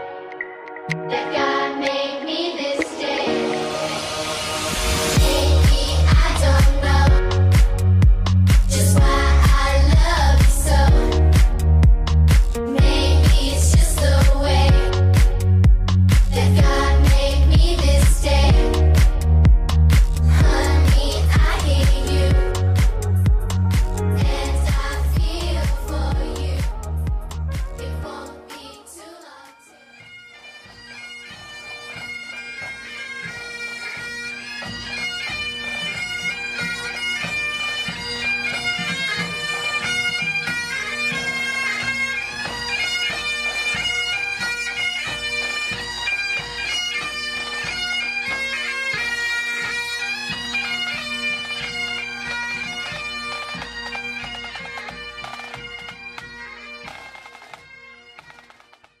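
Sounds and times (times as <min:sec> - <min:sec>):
bagpipe melody over drones: 0:29.6 - 0:59.0.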